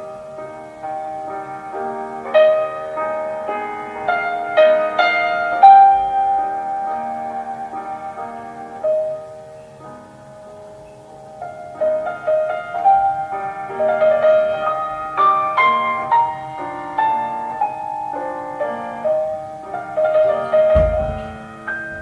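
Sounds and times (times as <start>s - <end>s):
solo piano melody: 0.0s - 22.0s
deep low thump: 20.8s - 22.0s.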